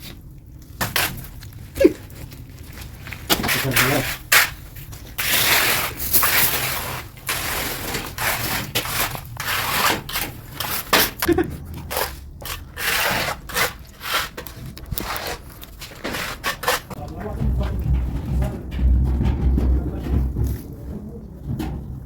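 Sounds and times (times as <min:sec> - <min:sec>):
rough scraping strokes: 0:02.8 - 0:19.2.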